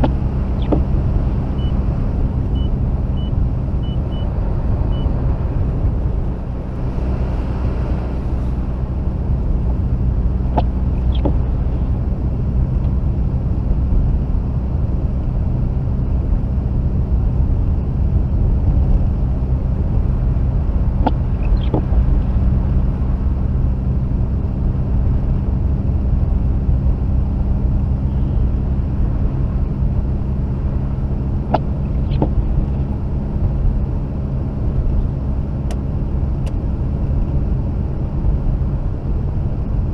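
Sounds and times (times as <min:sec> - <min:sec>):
car engine drone in cabin: 0:00.0 - 0:39.9.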